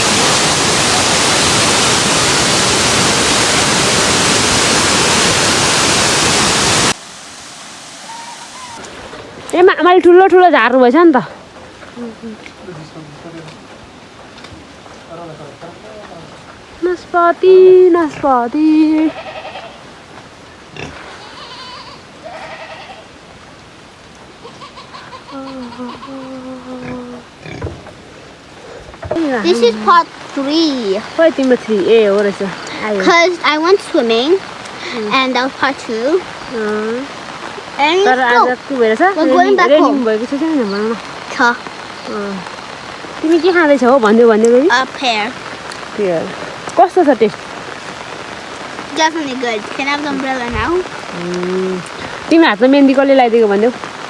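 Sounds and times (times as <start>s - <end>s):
waterfall rushing: 0.0s - 14.0s, 28.0s - 54.0s
farm animals bleating: 18.8s - 19.9s, 20.8s - 23.1s, 24.4s - 27.7s.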